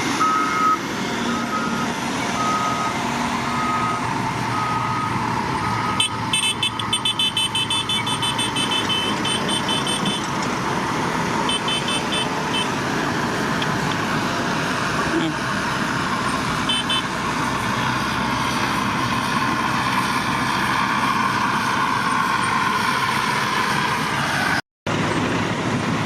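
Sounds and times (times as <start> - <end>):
heavy machine engine running: 0.0 - 26.0
reversing alarm beeping: 0.2 - 10.3, 11.5 - 12.8, 16.7 - 17.1
high-pitched rapid alarm beeping: 4.6 - 10.2, 11.5 - 12.7, 16.7 - 17.0.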